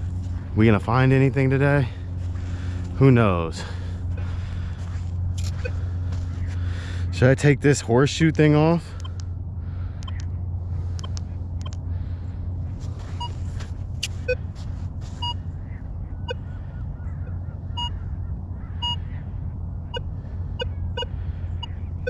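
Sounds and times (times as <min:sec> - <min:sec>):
steady low rumble: 0:00.0 - 0:22.0
metal detector beeps: 0:05.4 - 0:05.8, 0:13.1 - 0:13.4, 0:14.0 - 0:14.4, 0:15.2 - 0:15.4.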